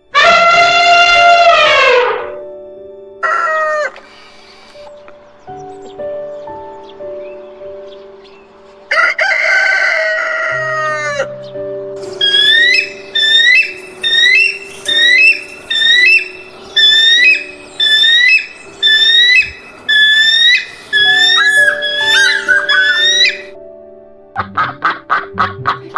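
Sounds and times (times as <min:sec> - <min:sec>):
background music with held notes: 0:00.0 - 0:25.9
rooster crowing: 0:08.9 - 0:11.3.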